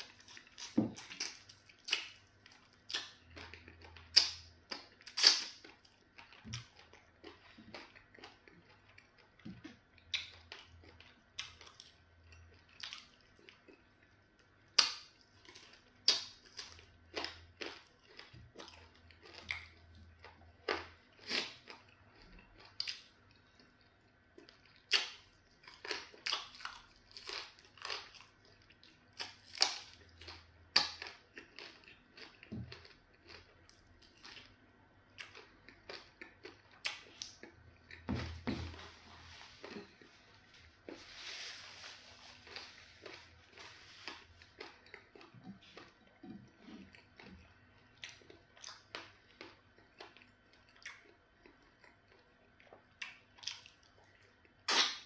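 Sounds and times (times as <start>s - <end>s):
chewing and wet mouth smacks: 42.5s - 55.0s.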